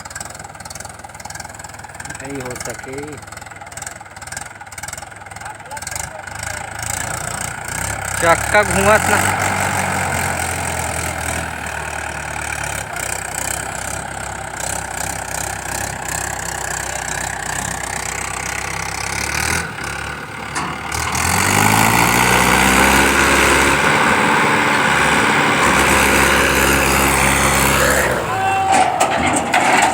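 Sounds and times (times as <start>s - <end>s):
heavy vehicle engine idling and revving: 0.0s - 29.9s.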